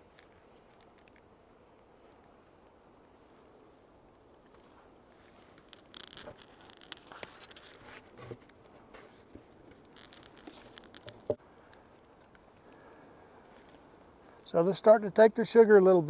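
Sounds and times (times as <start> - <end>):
light clicks and scrapes: 0.0 - 1.3, 4.3 - 14.4
short rustle: 4.4 - 14.5.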